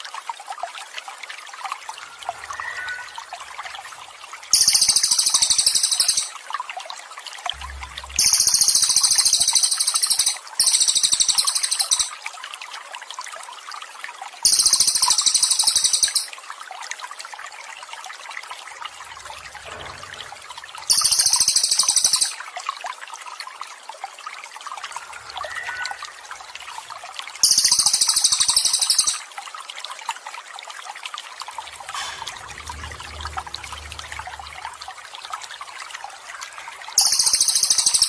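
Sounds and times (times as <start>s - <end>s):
trickling water: 0.0s - 38.0s
rapidly pulsed bird trills: 4.5s - 6.4s, 7.7s - 12.1s, 14.5s - 16.3s, 20.8s - 22.4s, 27.4s - 29.3s, 37.0s - 38.0s.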